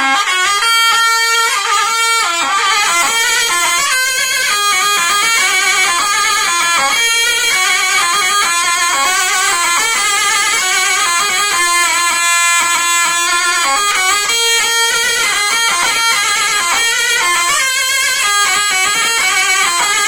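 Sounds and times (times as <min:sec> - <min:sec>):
reedy zurna dance melody: 0:00.0 - 0:20.0.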